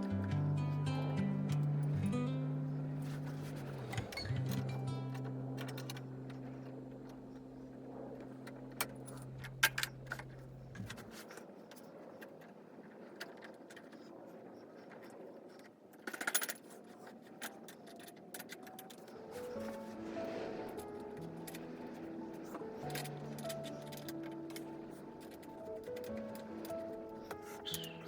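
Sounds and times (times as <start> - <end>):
low steady hum: 0.0 - 11.2
metal tools clinking: 21.4 - 28.0.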